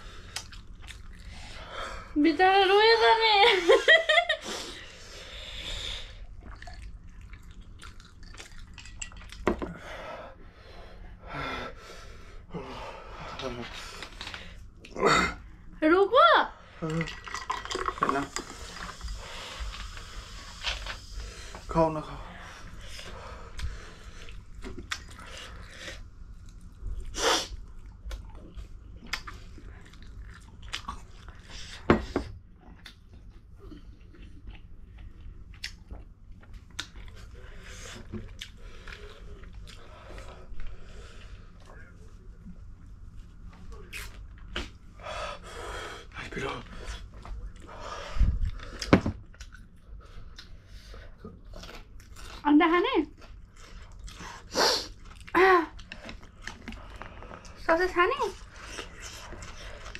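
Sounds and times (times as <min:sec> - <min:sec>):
wet chewing and mouth smacks: 0:00.3 - 0:01.3, 0:06.2 - 0:09.5, 0:23.5 - 0:31.5, 0:32.6 - 0:37.4, 0:38.1 - 0:40.3, 0:48.4 - 0:50.6, 0:53.2 - 0:57.6
chewing and biting: 0:06.4 - 0:09.4, 0:28.0 - 0:31.5.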